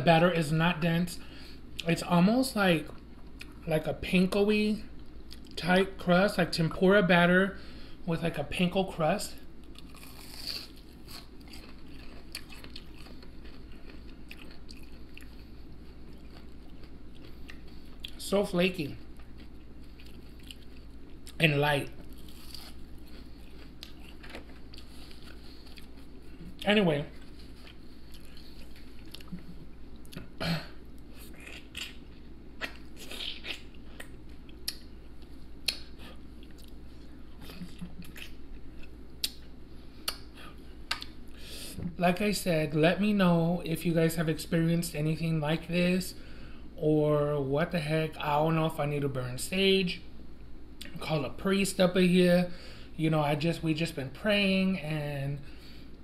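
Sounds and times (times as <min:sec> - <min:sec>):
crunching fried oyster: 0:09.6 - 0:18.2, 0:22.0 - 0:26.0
wet mouth sounds: 0:32.6 - 0:34.8.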